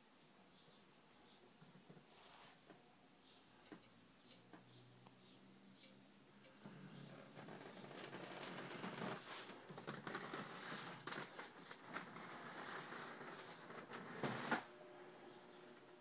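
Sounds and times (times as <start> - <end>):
rustling and clicking: 6.4 - 14.7.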